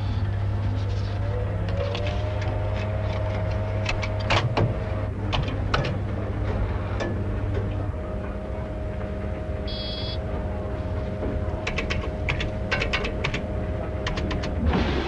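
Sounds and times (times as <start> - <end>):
electrical hum: 0.0 - 15.0
high electronic beep: 9.7 - 10.2.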